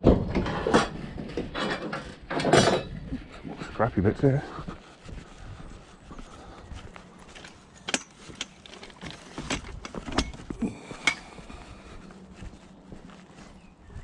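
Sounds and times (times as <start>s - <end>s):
scrap metal clanking: 0.0s - 3.2s.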